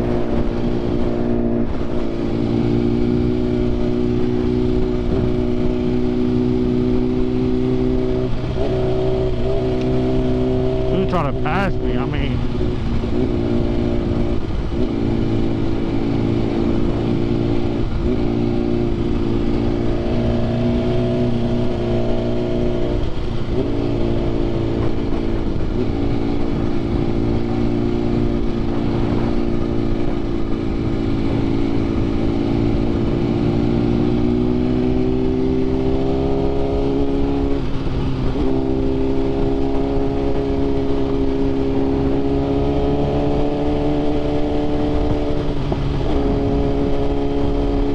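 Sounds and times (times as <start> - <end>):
motorcycle engine cruising: 0.0 - 47.9.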